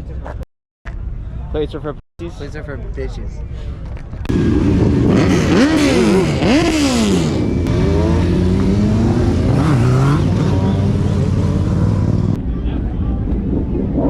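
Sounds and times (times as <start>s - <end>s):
car engine revving: 4.3s - 12.4s.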